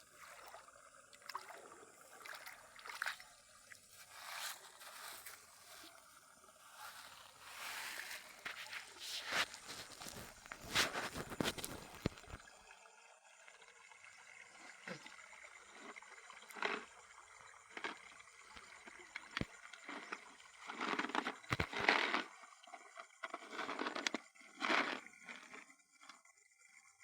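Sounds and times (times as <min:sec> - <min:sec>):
water sloshing and splashing: 0:00.0 - 0:13.7.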